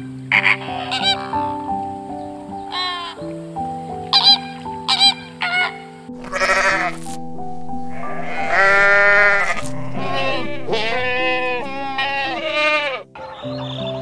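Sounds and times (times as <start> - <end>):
soft piano music: 0.0 - 14.0
goats bleating: 0.3 - 1.5, 5.6 - 7.2, 7.9 - 13.1
flamingo honks: 4.1 - 7.2, 7.8 - 13.0.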